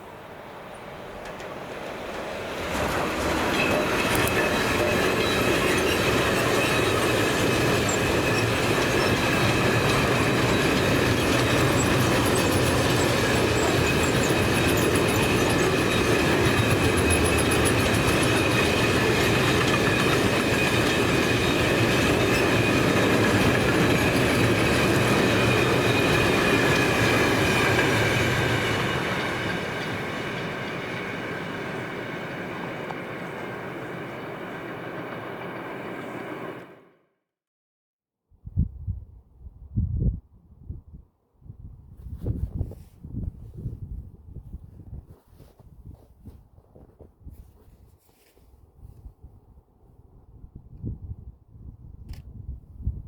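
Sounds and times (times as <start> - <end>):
train wheels rolling on rail: 0.0 - 36.8
high-pitched squeal: 2.6 - 36.8.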